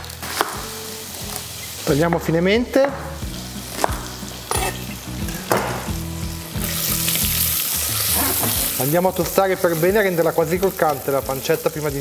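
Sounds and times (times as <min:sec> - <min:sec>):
meat sizzling in oil: 0:00.0 - 0:02.1, 0:03.1 - 0:12.0.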